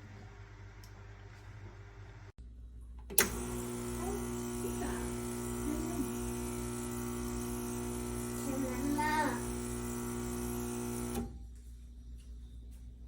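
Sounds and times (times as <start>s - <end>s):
electrical hum: 2.9s - 11.4s.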